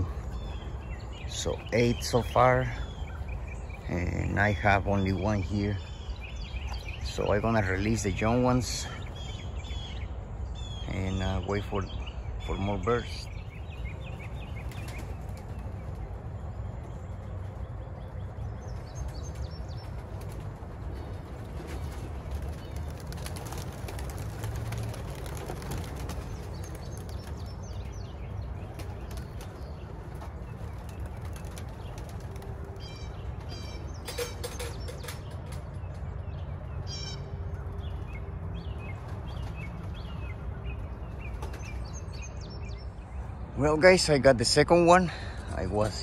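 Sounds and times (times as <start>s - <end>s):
small birds chirping: 0.0s - 46.0s
pigeon wings flapping: 19.1s - 33.5s.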